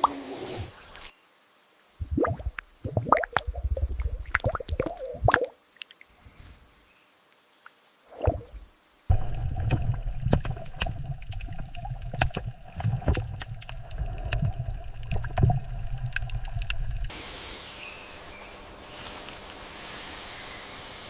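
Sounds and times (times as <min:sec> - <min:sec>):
water gurgling and sloshing: 0:02.0 - 0:05.9, 0:08.1 - 0:17.1
small clicks and pops: 0:09.6 - 0:17.1.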